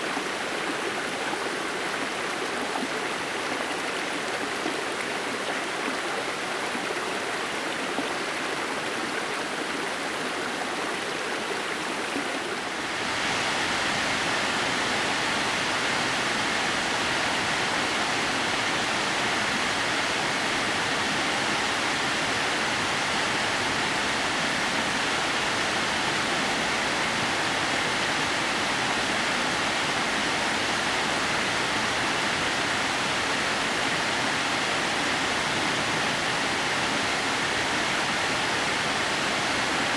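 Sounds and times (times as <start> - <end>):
waterfall rushing: 12.6 - 39.9.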